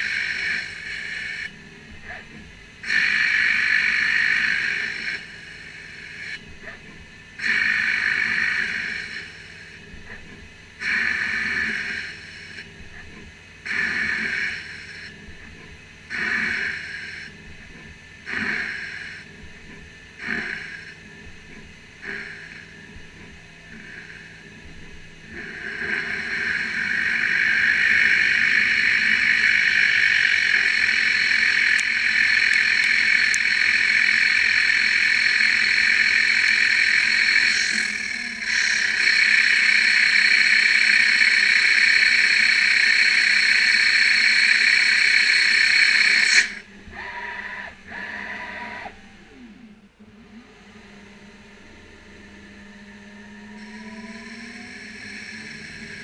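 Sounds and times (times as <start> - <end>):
quiet machine sounds: 0.0 - 56.0
lathe cutting steel: 25.4 - 49.6.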